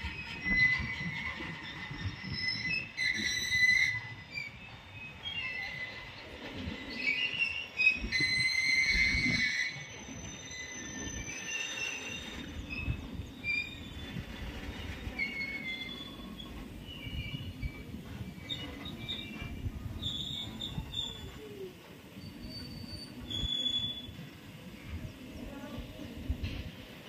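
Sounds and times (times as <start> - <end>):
high-pitched wheel squeals: 0.0 - 21.5, 22.2 - 24.3
train wheels rumbling on rails: 0.0 - 27.0.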